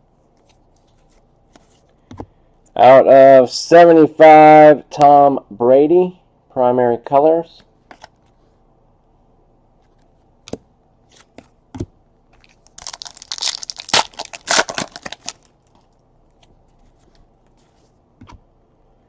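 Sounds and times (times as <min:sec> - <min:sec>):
foil wrapper tearing and crinkling: 0:12.4 - 0:15.8.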